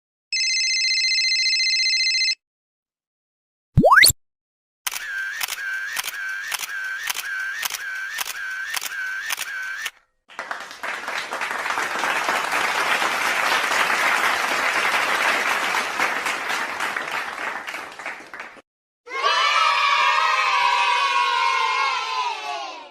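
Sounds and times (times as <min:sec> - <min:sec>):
clicks with short pitched tone: 0:03.8 - 0:04.2
applause: 0:10.3 - 0:18.7.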